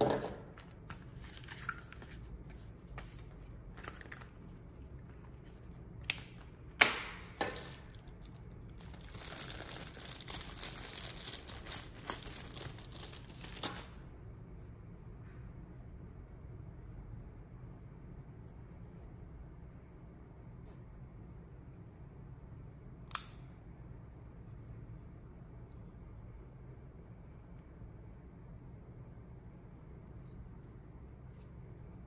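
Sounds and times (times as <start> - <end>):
packaging snapping: 6.0 - 13.9
wrapping crinkling and tearing: 7.4 - 14.0.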